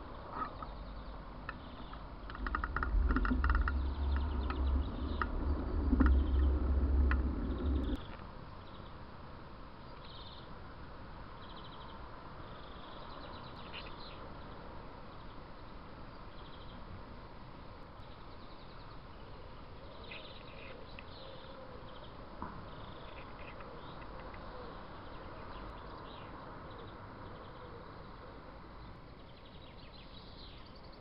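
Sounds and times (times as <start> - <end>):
small birds chirping: 0.0 - 9.0, 9.8 - 10.5, 11.3 - 16.9, 17.9 - 31.0
loud low rumble: 2.1 - 8.1.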